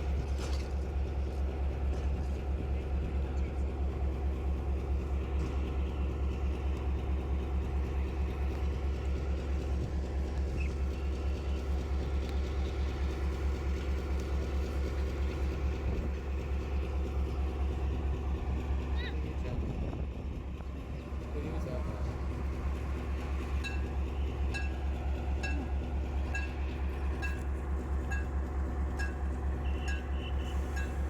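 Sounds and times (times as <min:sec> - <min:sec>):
engine running with low hum: 0:00.0 - 0:31.0.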